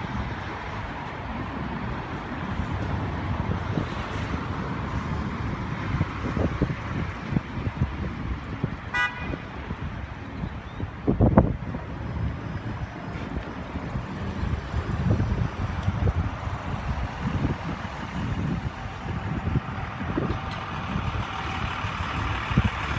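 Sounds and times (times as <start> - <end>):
street traffic rumble: 0.0 - 22.9
car horn toot: 8.9 - 9.5.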